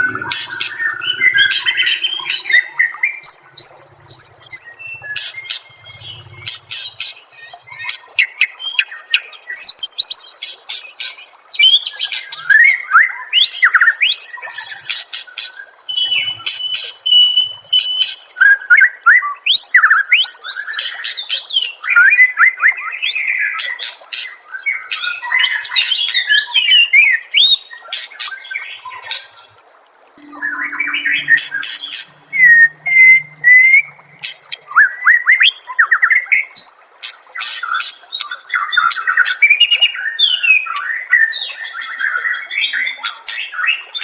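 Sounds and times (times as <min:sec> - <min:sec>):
bird singing whistles and chirps: 0:00.0 - 0:06.5, 0:09.5 - 0:10.2, 0:30.2 - 0:36.8.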